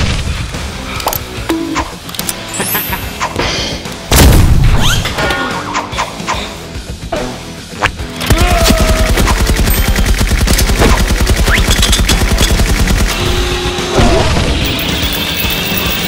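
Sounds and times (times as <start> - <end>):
music: 0.0 - 16.0
automatic gunfire: 8.6 - 13.6.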